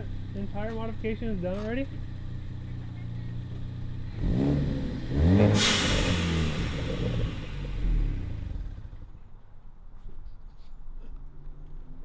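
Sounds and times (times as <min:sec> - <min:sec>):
car engine revving: 0:00.0 - 0:09.2
sharp hiss: 0:05.4 - 0:07.8.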